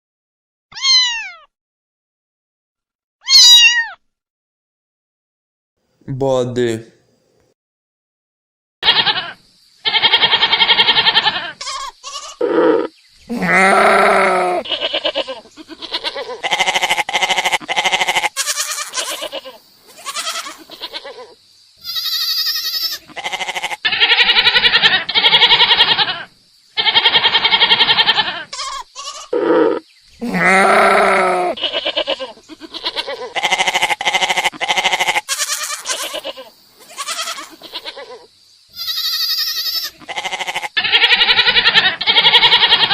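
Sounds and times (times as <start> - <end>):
goats bleating: 8.8 - 42.9.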